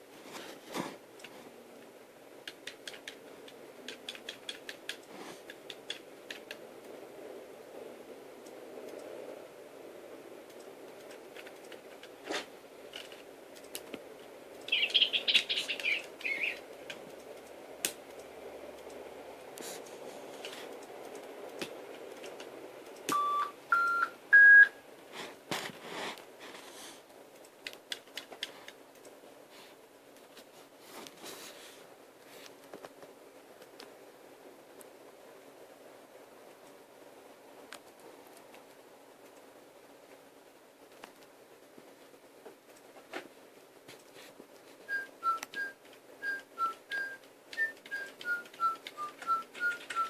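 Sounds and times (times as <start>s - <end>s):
light clicks: 8.4s - 9.2s
small bird chirping: 14.6s - 16.7s, 44.9s - 50.0s
bird whistled notes: 14.7s - 16.6s, 44.9s - 50.0s.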